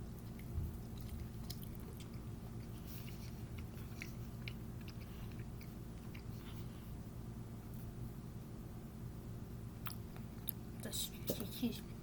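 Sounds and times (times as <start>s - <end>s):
person chewing food: 0.0s - 7.0s
steady low hum: 0.0s - 12.0s.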